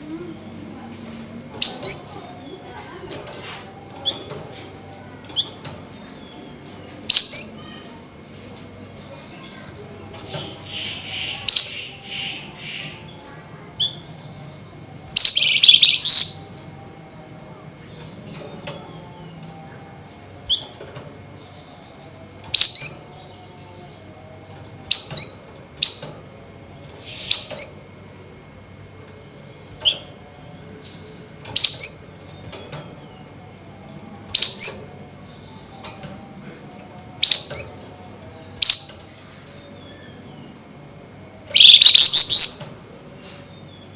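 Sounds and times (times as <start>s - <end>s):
bird chattering: 10.4s - 13.1s, 14.7s - 16.4s, 41.5s - 42.7s
songbird sharp calls: 15.1s - 16.4s, 41.5s - 42.7s.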